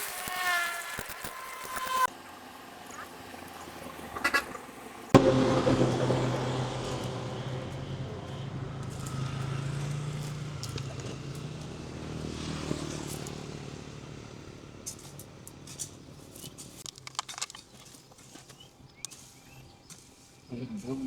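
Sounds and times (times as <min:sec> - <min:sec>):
low engine hum: 0:02.1 - 0:16.8.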